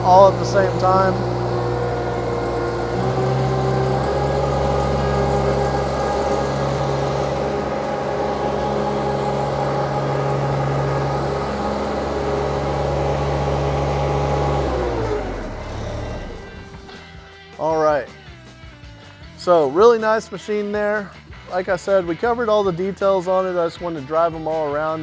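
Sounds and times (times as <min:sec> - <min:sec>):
hydraulics working: 0:00.0 - 0:17.1
diesel engine at high throttle: 0:00.0 - 0:17.2.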